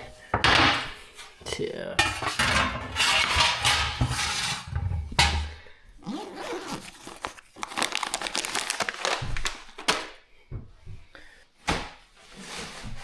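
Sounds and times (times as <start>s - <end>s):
crinkling and rustling: 2.0s - 10.2s, 11.7s - 13.0s.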